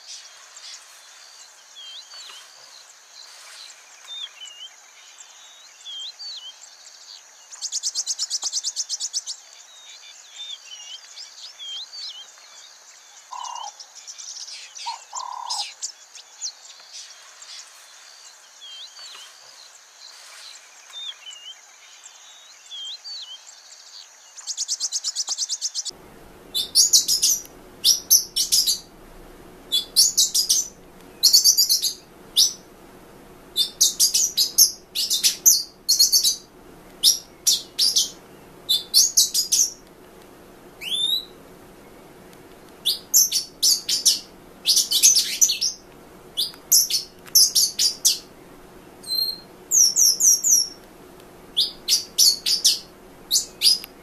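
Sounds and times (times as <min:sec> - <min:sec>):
bird chirping and twittering: 0:00.0 - 0:50.9, 0:51.5 - 0:54.0
buzzy rapid bird trill: 0:13.3 - 0:21.5, 0:24.4 - 0:39.8, 0:40.7 - 0:50.8, 0:51.5 - 0:53.9
steady low hum: 0:25.9 - 0:54.0.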